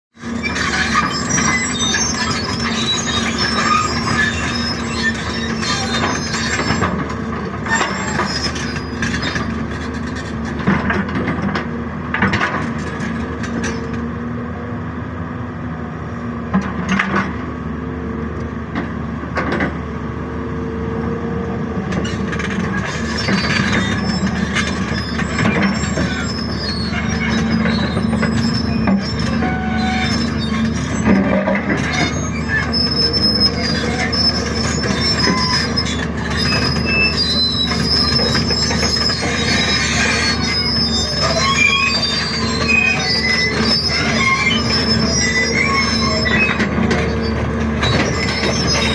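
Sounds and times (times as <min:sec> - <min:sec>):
steel parts squealing: 0:00.2 - 0:10.4, 0:22.0 - 0:48.9
excavator engine and hydraulics: 0:00.2 - 0:48.9.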